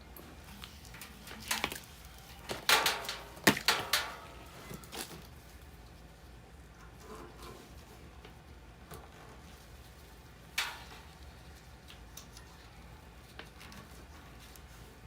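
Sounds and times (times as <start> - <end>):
clicks and rasps of wiring work: 0.5 - 5.3, 10.5 - 12.7.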